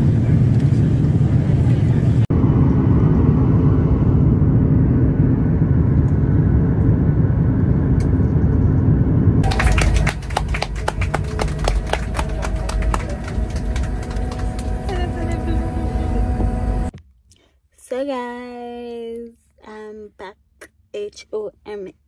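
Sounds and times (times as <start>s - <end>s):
vehicle rumbling in motion: 0.0s - 17.0s.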